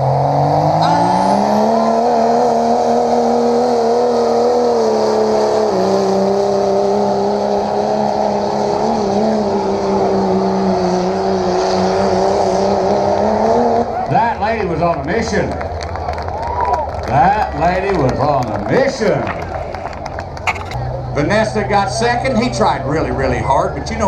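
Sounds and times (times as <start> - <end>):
truck engine at high revs: 0.0 - 24.0.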